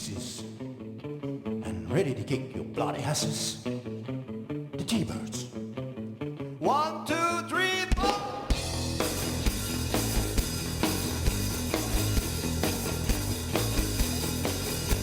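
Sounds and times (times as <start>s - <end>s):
live rock band playing: 7.9s - 15.0s.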